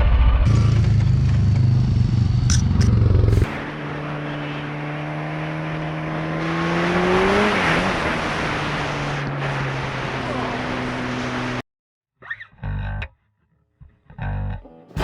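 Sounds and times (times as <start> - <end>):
vehicle engine running: 0.0 - 6.4
road and wind noise: 0.4 - 11.6.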